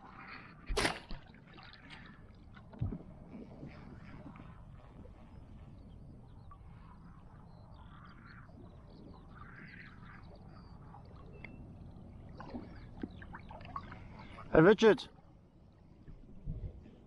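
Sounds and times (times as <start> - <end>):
low rumble of wind or water: 0.0 - 17.0
faint birds chirping: 4.1 - 16.1.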